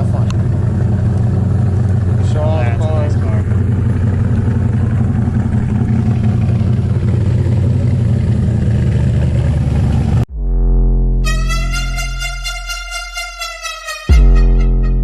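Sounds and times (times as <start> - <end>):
car engine idling: 0.0 - 10.3
electronic music: 10.3 - 15.0.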